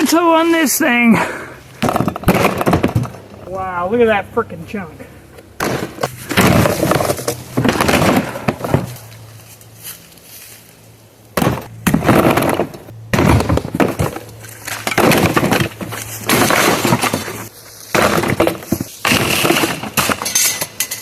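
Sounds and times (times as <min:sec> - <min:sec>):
dishwasher parts breaking and clattering: 0:11.5 - 0:17.3, 0:19.1 - 0:21.0.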